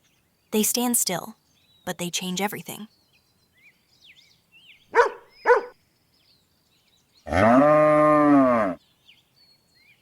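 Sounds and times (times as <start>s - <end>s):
birds chirping faintly: 0.0s - 10.0s
dog barking: 4.9s - 5.8s
cow mooing: 7.3s - 8.8s.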